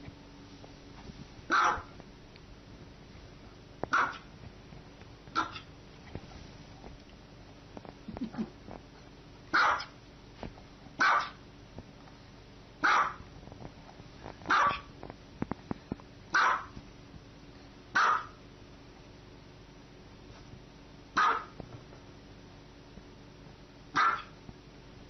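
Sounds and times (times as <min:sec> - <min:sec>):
small dog barking: 0:01.5 - 0:02.0, 0:03.9 - 0:04.3, 0:05.3 - 0:05.7, 0:09.5 - 0:10.0, 0:11.0 - 0:11.4, 0:12.8 - 0:13.2, 0:14.5 - 0:14.9, 0:16.3 - 0:16.8, 0:17.9 - 0:18.4, 0:21.2 - 0:21.6, 0:23.9 - 0:24.4.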